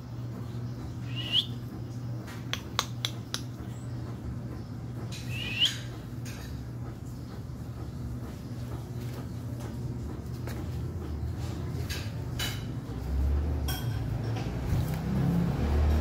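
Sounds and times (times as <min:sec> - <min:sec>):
steady low hum: 0:00.0 - 0:16.0
high-pitched bird chirps: 0:01.0 - 0:01.6, 0:05.2 - 0:06.0.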